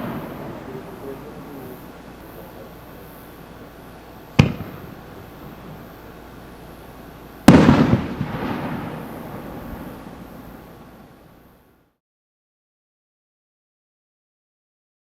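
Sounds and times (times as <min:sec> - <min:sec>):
firework shell boom: 0:04.3 - 0:05.8, 0:07.4 - 0:09.8
firework launch thump: 0:04.3 - 0:06.0, 0:07.4 - 0:10.3.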